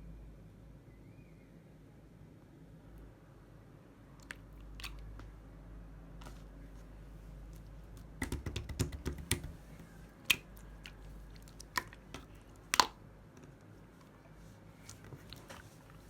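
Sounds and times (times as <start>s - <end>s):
slime squeezed clicking and popping: 10.3s - 13.0s.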